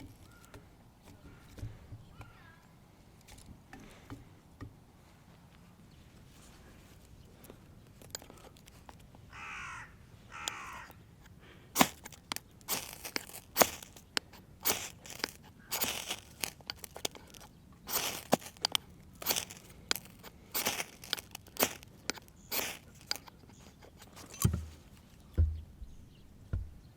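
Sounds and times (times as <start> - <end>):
sharp crunching and scraping: 0.0 - 2.6, 5.9 - 25.4
crow cawing: 9.3 - 11.0.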